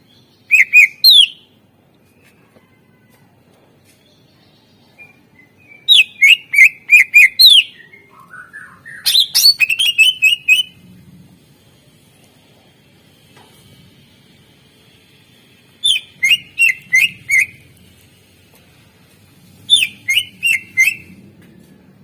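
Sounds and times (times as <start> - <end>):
bird singing: 0.0 - 1.5, 4.1 - 10.8, 15.8 - 17.7, 19.7 - 21.2.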